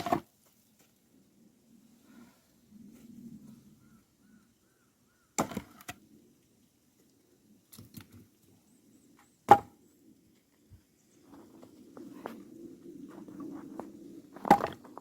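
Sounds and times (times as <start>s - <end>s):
axe chopping wood: 5.4s - 5.9s, 9.5s - 9.7s.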